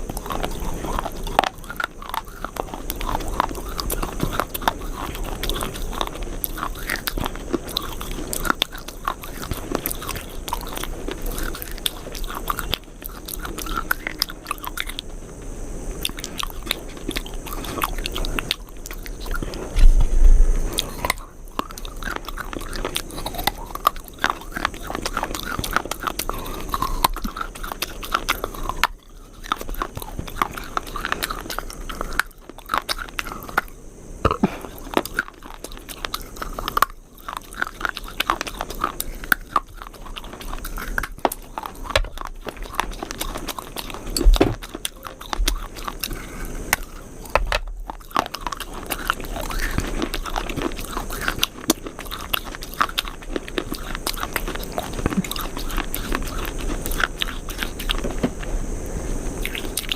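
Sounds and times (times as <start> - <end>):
person crunching and chewing: 0.0 - 59.9
low bump: 19.7 - 20.7.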